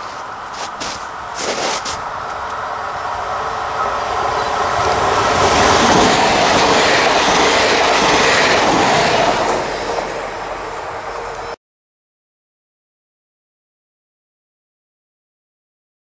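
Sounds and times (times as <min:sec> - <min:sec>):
train wheels on rails: 0:00.0 - 0:11.6.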